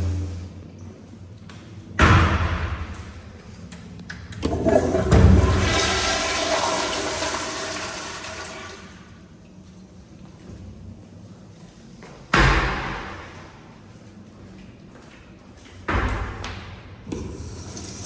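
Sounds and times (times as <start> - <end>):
toilet flushing: 0.0 - 0.5, 4.4 - 9.2, 17.1 - 18.0.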